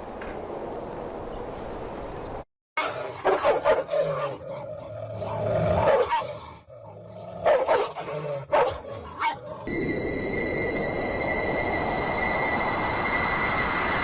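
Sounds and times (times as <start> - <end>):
dog barking and growling: 2.8 - 9.7.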